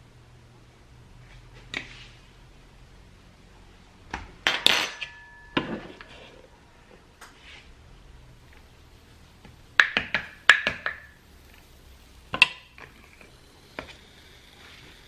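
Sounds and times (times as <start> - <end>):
utensils clattering against dishes: 4.5 - 6.4.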